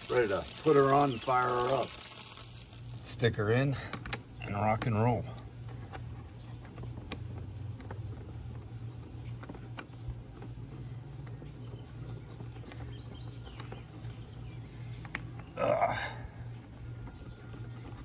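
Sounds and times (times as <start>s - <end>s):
insects shrilling: 0.0s - 3.6s
low steady hum: 0.0s - 18.0s.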